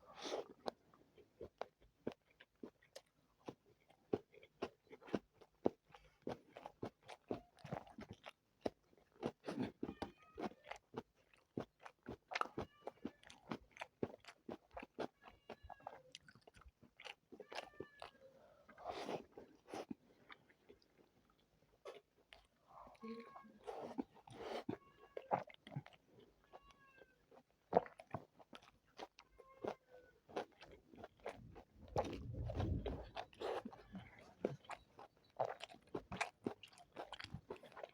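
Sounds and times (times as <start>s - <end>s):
close-miked chewing and biting: 0.0s - 37.9s
low thump-like rumble: 31.6s - 33.3s.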